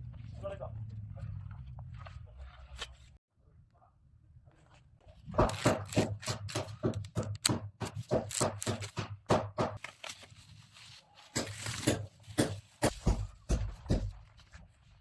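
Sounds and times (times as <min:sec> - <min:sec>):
sharp clicks and knocks: 0:05.3 - 0:09.8.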